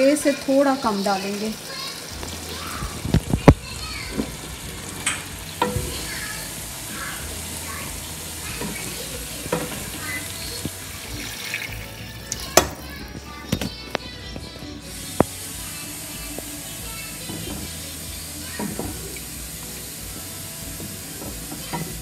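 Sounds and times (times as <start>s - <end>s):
water poured into pot: 0.0s - 13.6s
vegetables sizzling in a pot: 0.0s - 22.0s.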